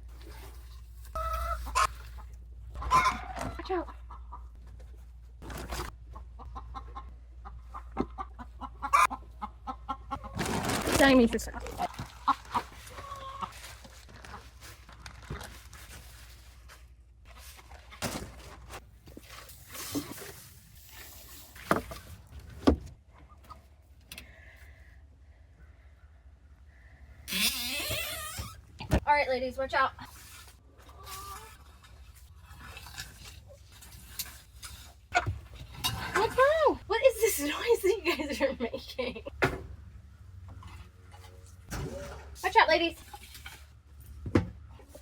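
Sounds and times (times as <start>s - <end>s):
chickens clucking: 1.1s - 4.8s, 5.9s - 10.8s, 11.5s - 13.6s.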